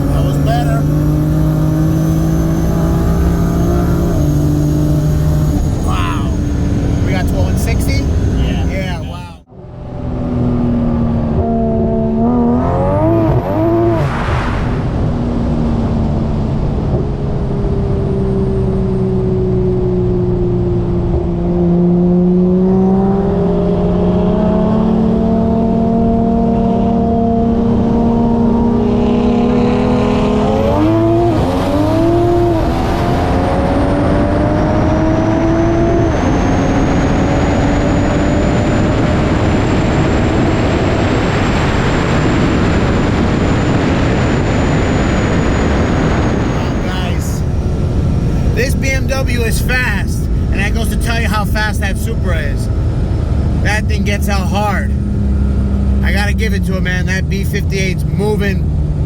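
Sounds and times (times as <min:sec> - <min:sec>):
car engine running hard: 0:00.0 - 0:59.0.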